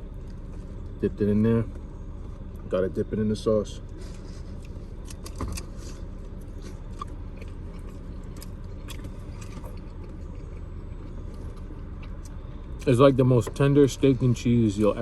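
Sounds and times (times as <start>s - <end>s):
man chewing food: 4.0s - 12.9s.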